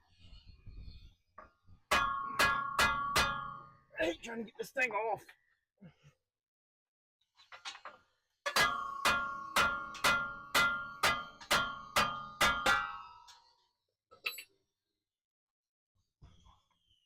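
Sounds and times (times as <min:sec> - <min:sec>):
hammer striking metal: 0:01.9 - 0:03.9, 0:08.5 - 0:13.5.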